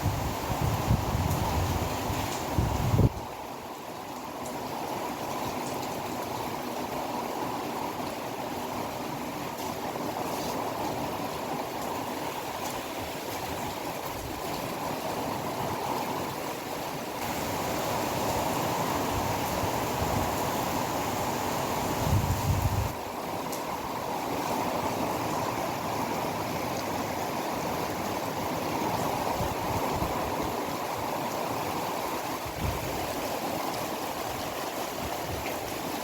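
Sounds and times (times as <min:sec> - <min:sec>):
wind buffeting microphone: 0:00.0 - 0:03.2, 0:21.8 - 0:23.0
strong wind rushing: 0:18.5 - 0:23.0.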